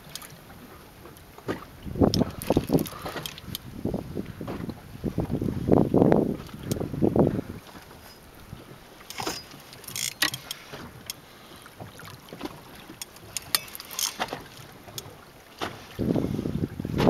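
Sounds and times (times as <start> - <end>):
knocks and clicks on boat: 0.0 - 17.0
wind on microphone: 1.5 - 9.6, 14.3 - 17.0.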